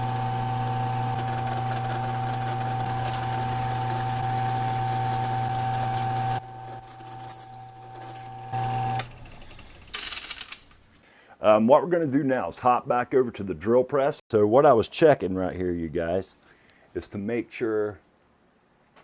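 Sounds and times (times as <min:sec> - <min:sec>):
electric drill boring into wood: 0:00.0 - 0:07.2.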